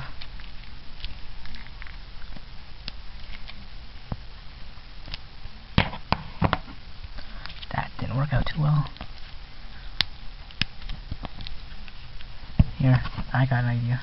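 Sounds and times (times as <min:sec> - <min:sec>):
plastic wrap crinkling: 0:00.0 - 0:05.3.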